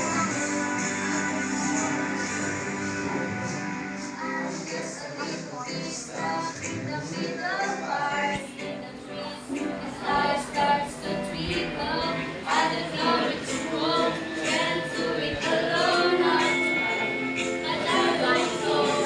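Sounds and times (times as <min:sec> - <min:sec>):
woman singing: 0:17.6 - 0:19.0.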